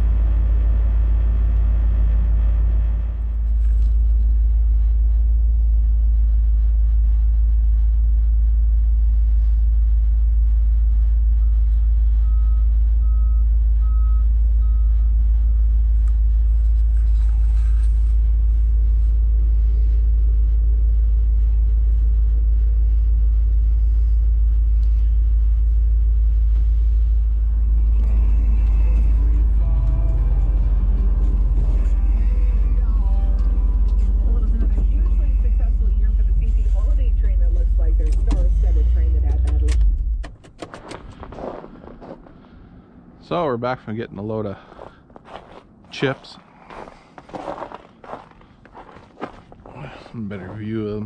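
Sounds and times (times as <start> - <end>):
heavy vehicle engine rumbling: 0.0 - 51.0
reversing alarm beeping: 11.4 - 15.6.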